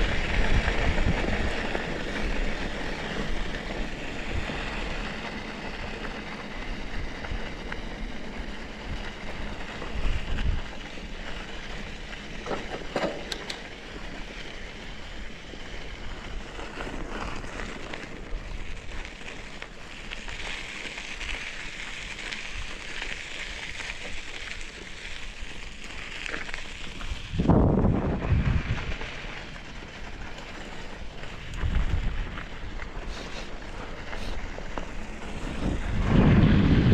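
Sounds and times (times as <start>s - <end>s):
wind buffeting microphone: 0.0s - 5.2s, 6.6s - 10.9s, 27.0s - 29.3s, 30.6s - 33.2s, 34.9s - 36.9s
bike tyres rumbling on dirt: 0.0s - 36.9s.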